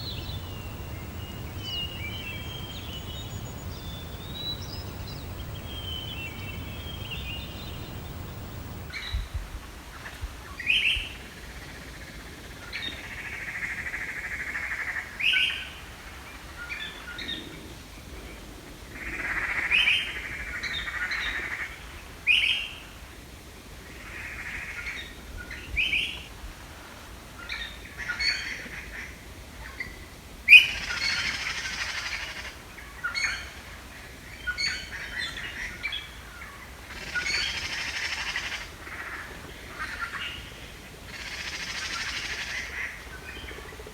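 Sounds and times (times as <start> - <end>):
birds calling: 0.0 - 8.9
low rumble: 0.0 - 8.9.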